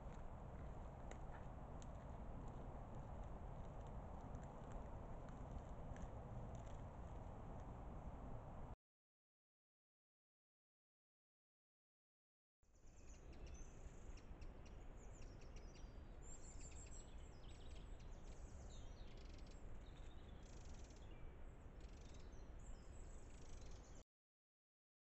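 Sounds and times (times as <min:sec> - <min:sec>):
steady low rumble: 0:00.0 - 0:08.8
small birds chirping and trilling: 0:12.8 - 0:24.0.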